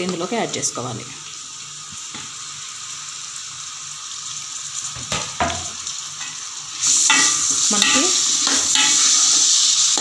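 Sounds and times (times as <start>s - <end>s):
vegetables sizzling in oil: 0.0s - 10.0s
metal spoon scraping pan: 7.0s - 9.3s.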